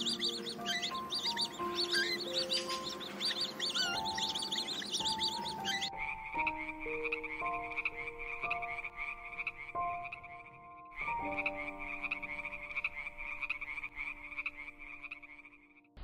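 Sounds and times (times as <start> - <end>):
frogs croaking: 0.0 - 16.0.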